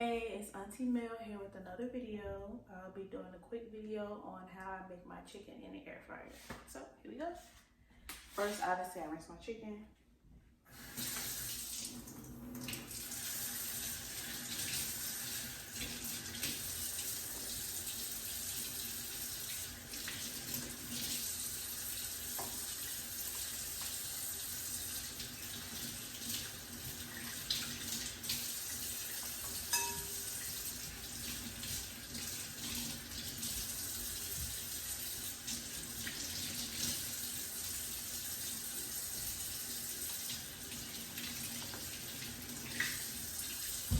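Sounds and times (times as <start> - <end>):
tap running into sink: 22.3 - 24.0.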